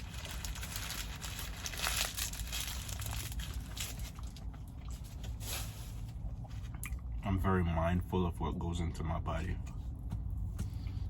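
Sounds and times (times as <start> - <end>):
paper wrapper crinkling: 0.0 - 5.8
steady low hum: 0.0 - 11.0.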